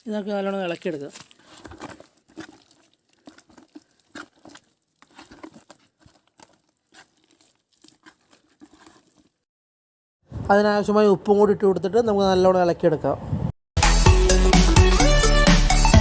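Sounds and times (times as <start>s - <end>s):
chicken mixed in wet marinade: 0.0s - 9.4s.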